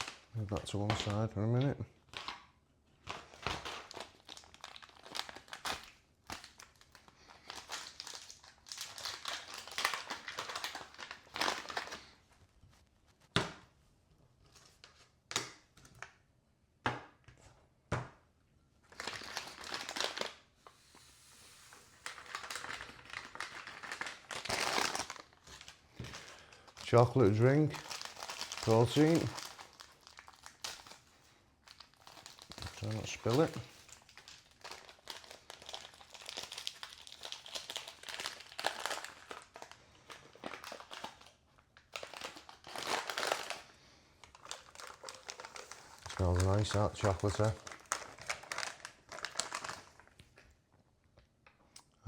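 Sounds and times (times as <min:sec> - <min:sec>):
packet tearing: 0:00.0 - 0:01.3, 0:02.0 - 0:12.1, 0:18.9 - 0:20.5, 0:22.0 - 0:31.1, 0:31.7 - 0:50.4
packets crinkling: 0:00.0 - 0:12.3, 0:18.9 - 0:20.5, 0:21.9 - 0:50.6.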